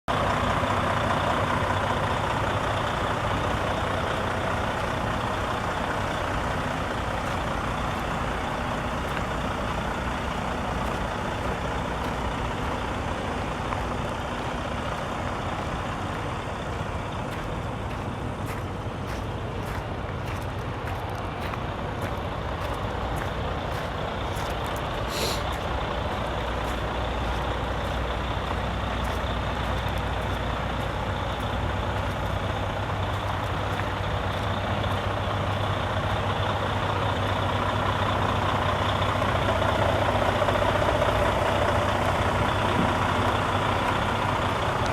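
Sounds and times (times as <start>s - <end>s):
diesel truck engine running: 0.0s - 44.9s
brief high hiss: 25.1s - 25.5s.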